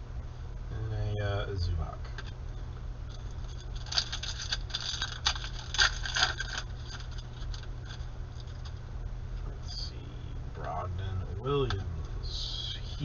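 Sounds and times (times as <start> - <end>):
cards scraping out of pack: 3.2 - 8.8
foil pack crinkling and tearing: 3.2 - 8.8.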